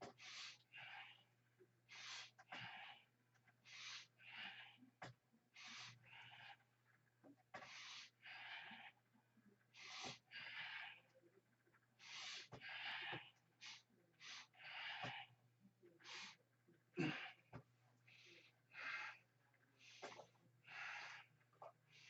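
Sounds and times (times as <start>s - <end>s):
man breathing hard: 3.6s - 4.8s, 5.6s - 6.6s, 7.6s - 9.0s, 9.8s - 11.0s, 12.0s - 15.3s, 17.0s - 22.0s.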